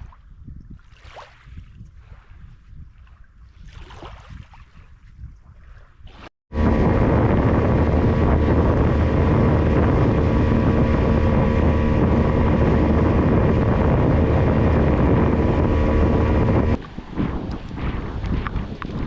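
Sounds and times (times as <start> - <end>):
rushing wind and water: 0.0 - 19.0
motorboat engine drone: 6.5 - 19.0.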